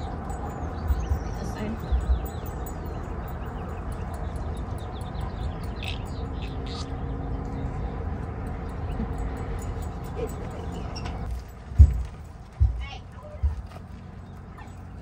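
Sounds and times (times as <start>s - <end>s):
small birds chirping: 0.0s - 11.3s.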